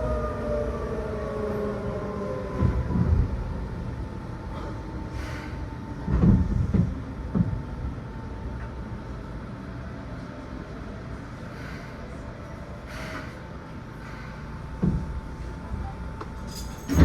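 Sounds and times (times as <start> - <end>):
train wheels rumbling on rail: 0.0 - 17.0
wheels clunking over rail joints: 16.2 - 17.0.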